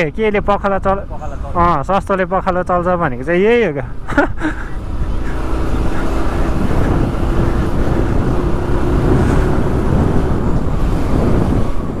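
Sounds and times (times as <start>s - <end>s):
wind and road noise: 0.0s - 12.0s
motorcycle engine hum: 0.2s - 12.0s.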